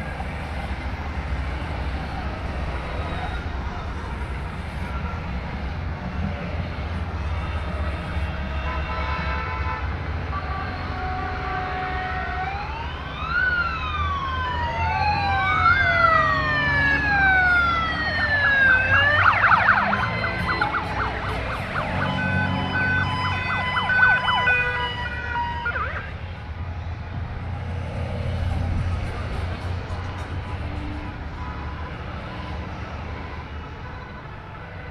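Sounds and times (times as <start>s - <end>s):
sirens wailing: 0.0s - 34.9s
horn-like tones: 18.4s - 26.0s.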